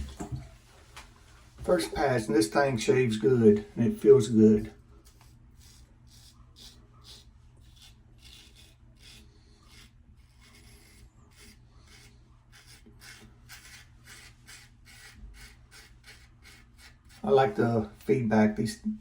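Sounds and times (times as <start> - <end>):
razor scraping stubble: 4.0 - 18.2.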